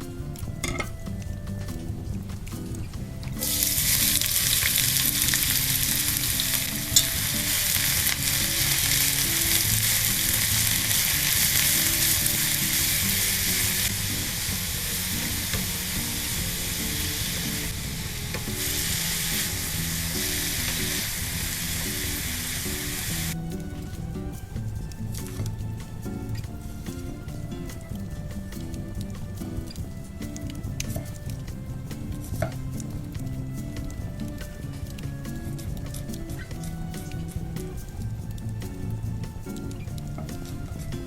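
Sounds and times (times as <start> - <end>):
food sizzling in hot oil: 3.4 - 17.7.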